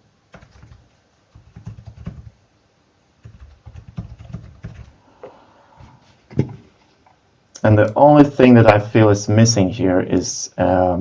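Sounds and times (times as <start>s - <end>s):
typing on computer keyboard: 0.3s - 2.4s, 3.2s - 5.0s.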